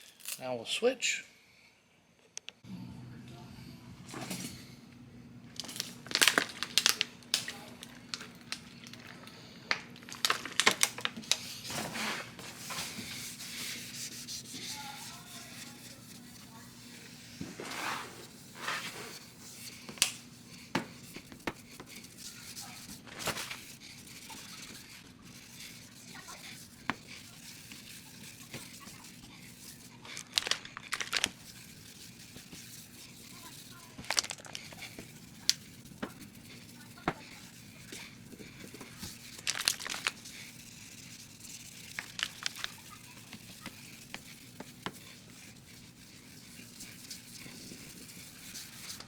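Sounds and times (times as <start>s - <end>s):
crinkling and crackling clicks: 5.6s - 11.4s, 30.0s - 31.4s, 33.9s - 36.2s, 37.0s - 40.2s
rustling: 10.2s - 49.0s.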